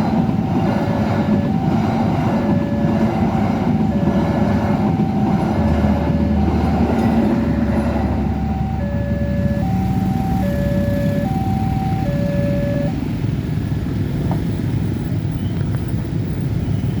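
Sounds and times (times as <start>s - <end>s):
road traffic rumble: 0.0s - 17.0s
level crossing two-tone alarm: 0.2s - 13.1s.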